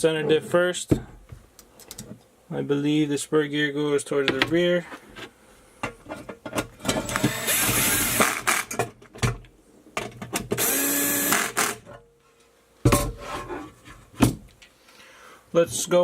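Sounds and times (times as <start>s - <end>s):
electric screwdriver driving screws: 7.0s - 8.7s, 10.6s - 11.8s.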